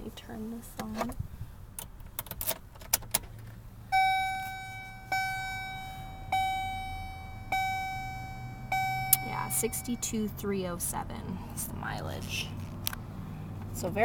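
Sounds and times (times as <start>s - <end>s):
dashboard warning chime: 3.9s - 10.4s.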